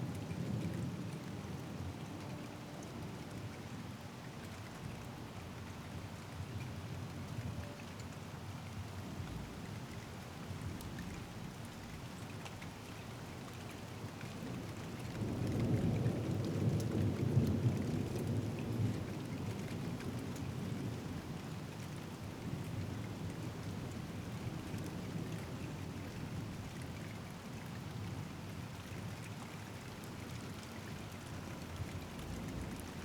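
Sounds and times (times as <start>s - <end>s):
steady rain falling: 0.0s - 33.0s
low rumble of thunder: 14.2s - 29.0s, 29.8s - 33.0s.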